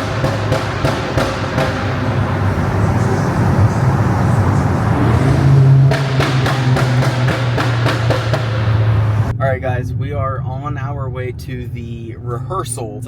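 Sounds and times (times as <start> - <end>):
car engine hum: 0.0 - 13.0
road noise: 0.0 - 13.0.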